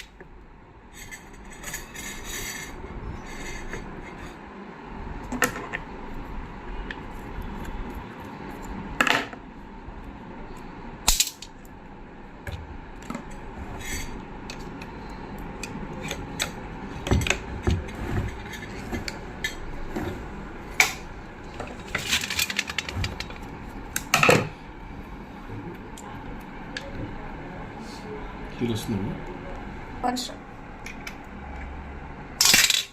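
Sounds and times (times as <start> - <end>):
metal parts clicking and clinking: 11.1 - 11.6, 21.8 - 23.4, 32.4 - 32.9.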